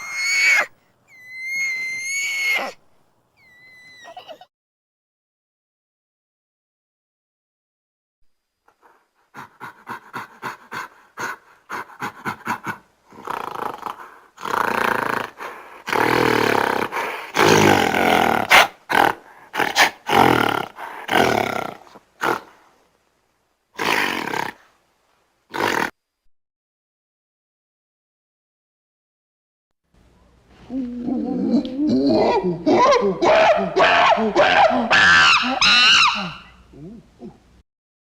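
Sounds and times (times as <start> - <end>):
primate calling: 0.0 - 2.8, 3.4 - 4.4, 30.6 - 37.4.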